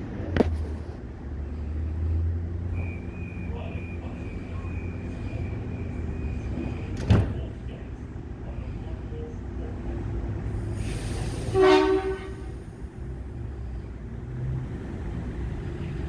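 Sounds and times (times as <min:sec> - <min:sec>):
train rumble: 0:00.0 - 0:16.0
air hiss: 0:10.6 - 0:12.8.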